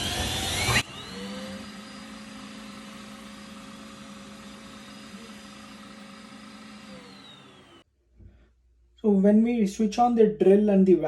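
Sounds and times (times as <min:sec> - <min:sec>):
electric motor whining: 0:00.0 - 0:07.8.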